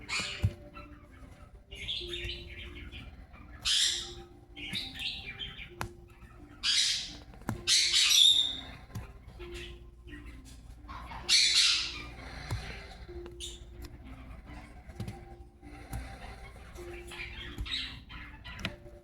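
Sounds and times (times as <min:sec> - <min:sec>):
parrot squawking: 0:00.0 - 0:19.0.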